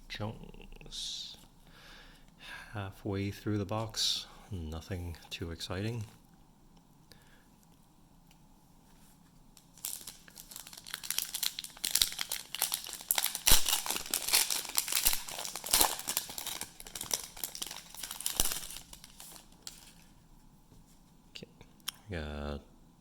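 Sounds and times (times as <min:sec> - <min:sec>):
plastic wrapper crinkling and tearing: 0:09.6 - 0:20.1.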